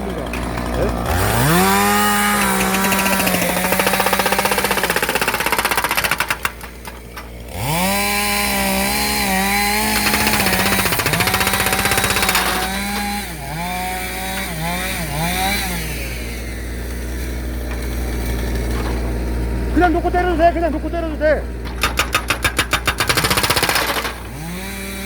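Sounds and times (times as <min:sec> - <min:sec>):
diesel engine revving: 0:00.0 - 0:25.0
hydraulic breaker hammering on log: 0:00.2 - 0:16.6, 0:21.6 - 0:25.0.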